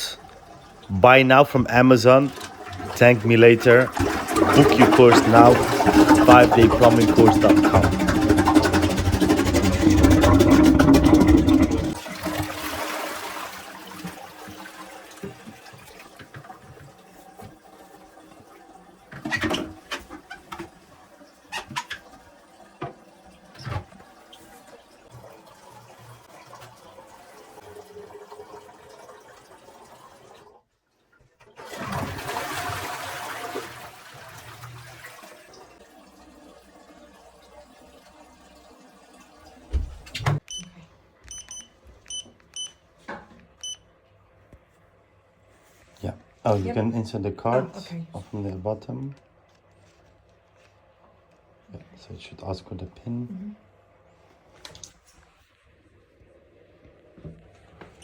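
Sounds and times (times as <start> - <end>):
toilet flushing: 0.0 - 40.4.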